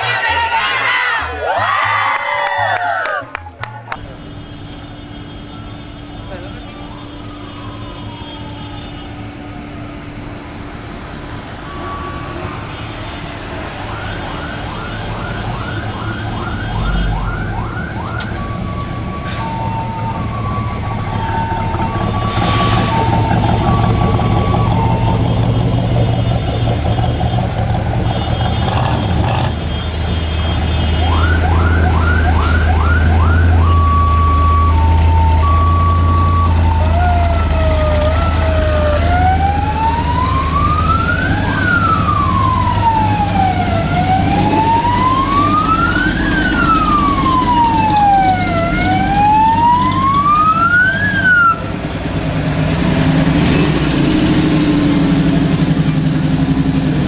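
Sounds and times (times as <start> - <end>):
electronic siren: 5.5 - 10.2, 11.3 - 51.8
engine idling: 13.9 - 33.8.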